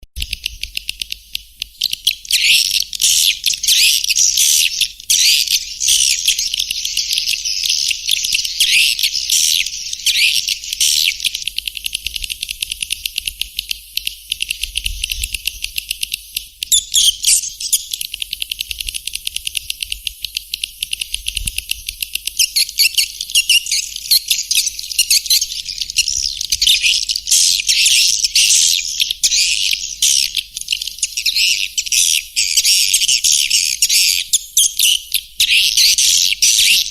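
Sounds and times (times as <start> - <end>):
swiftlet flock twittering: 1.8 - 19.8, 22.4 - 36.9.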